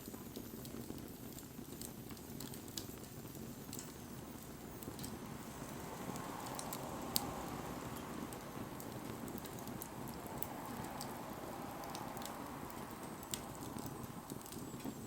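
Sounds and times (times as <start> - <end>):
fire crackles and pops: 0.0 - 15.0
low rumble of flame: 0.0 - 15.0.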